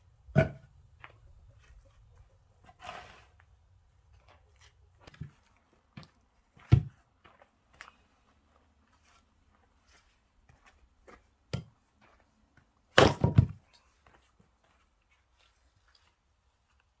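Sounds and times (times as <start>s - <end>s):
axe striking log: 0.4s - 0.6s, 13.0s - 13.6s
light knocks and wood clatter: 4.2s - 7.0s, 13.0s - 13.9s.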